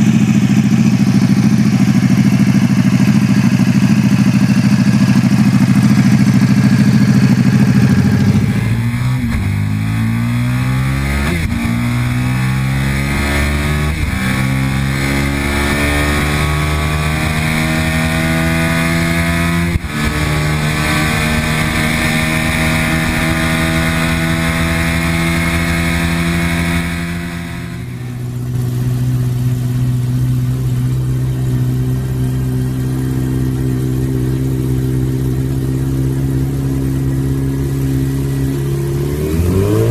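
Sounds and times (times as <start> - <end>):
motorcycle engine accelerating: 0.0 - 39.9
motorcycle engine running at low speed: 0.0 - 39.9.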